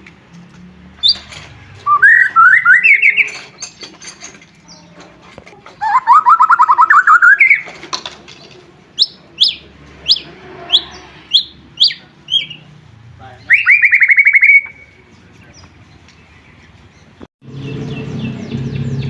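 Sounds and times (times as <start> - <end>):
bird trilling: 1.0 - 4.0, 5.8 - 7.8, 8.9 - 15.7
bird whistles sliding downward: 1.9 - 3.4, 5.8 - 7.7, 13.5 - 15.0.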